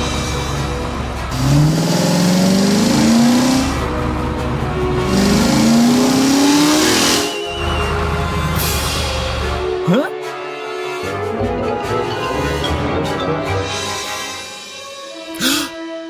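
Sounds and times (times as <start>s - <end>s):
background music: 0.0s - 16.0s
cartoon race car engine revving: 1.1s - 7.4s.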